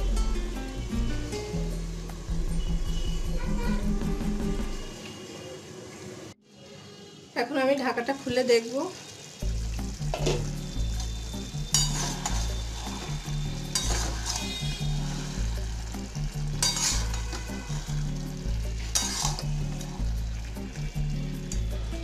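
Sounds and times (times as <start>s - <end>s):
curry sizzling: 0.0s - 22.0s
metal spatula scraping a pan: 10.2s - 20.1s.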